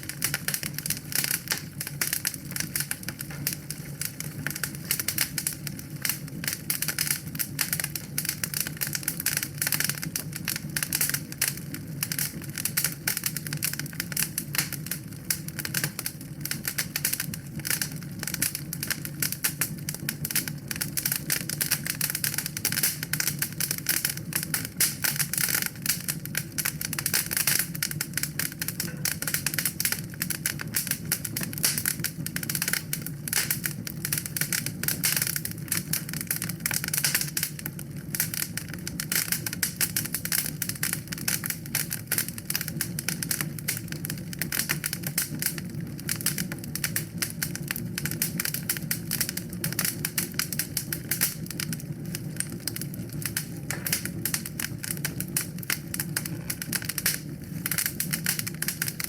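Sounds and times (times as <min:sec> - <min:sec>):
wood fire crackling: 0:00.0 - 0:59.0
low rush of flame: 0:48.3 - 0:59.0.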